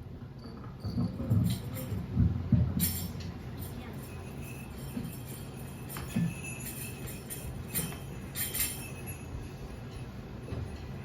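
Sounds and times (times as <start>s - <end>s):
steady low hum: 0.0s - 11.0s
sleigh bells jingling: 2.8s - 11.0s.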